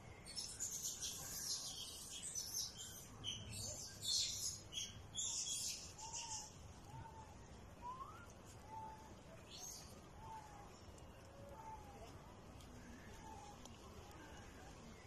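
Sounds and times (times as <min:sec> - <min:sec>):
small birds chirping: 0:00.0 - 0:15.0
faint whistled bird calls: 0:00.2 - 0:12.2.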